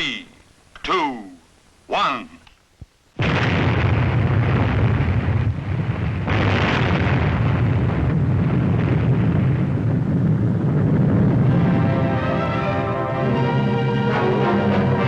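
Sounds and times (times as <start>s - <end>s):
loud rumbling roar: 6.4s - 15.0s.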